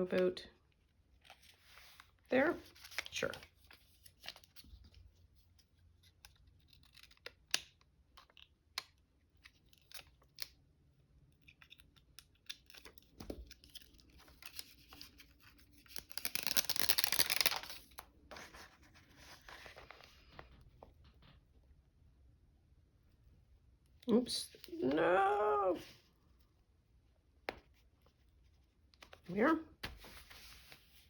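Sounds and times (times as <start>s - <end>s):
paper tapping and rustling: 29.8s - 30.8s.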